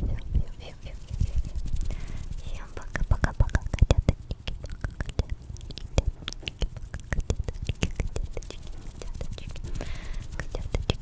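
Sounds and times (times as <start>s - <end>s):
wet mouth clicks and smacks: 1.8s - 11.0s.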